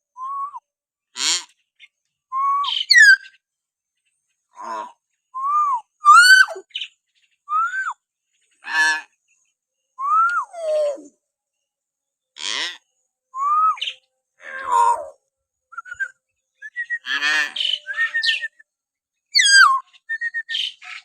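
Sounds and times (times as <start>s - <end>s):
myna bird calling: 2.4s - 3.4s, 13.4s - 18.6s, 19.3s - 21.0s.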